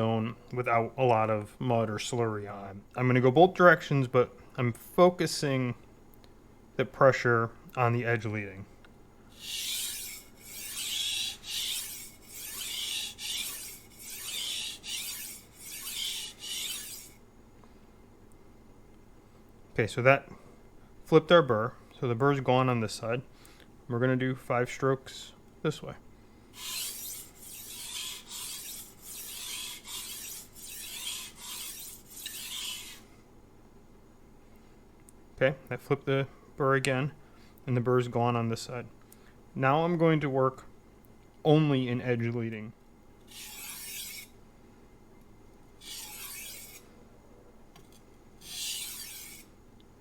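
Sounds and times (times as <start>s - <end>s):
knife scraping on whetstone: 9.4s - 17.2s, 26.6s - 33.0s, 43.3s - 44.4s, 45.8s - 46.9s, 47.8s - 49.6s.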